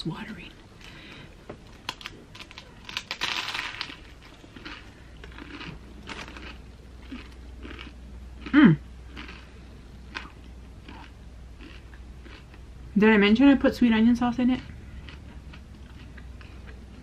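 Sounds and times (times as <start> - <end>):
crunchy sandwich bite: 1.8 - 9.5
person humming mmm: 8.5 - 8.8
mouth-open chewing: 10.1 - 12.5.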